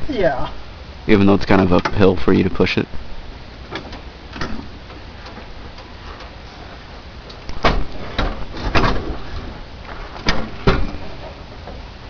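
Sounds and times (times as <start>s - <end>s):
sharp knocks and clunks: 7.5s - 9.5s, 10.1s - 11.8s.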